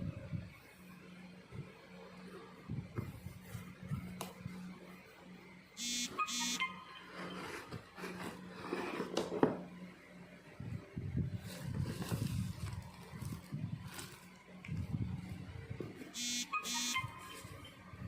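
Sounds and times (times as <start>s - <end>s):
low steady hum: 0.0s - 8.8s
short high beeps: 5.8s - 7.0s, 16.2s - 17.3s.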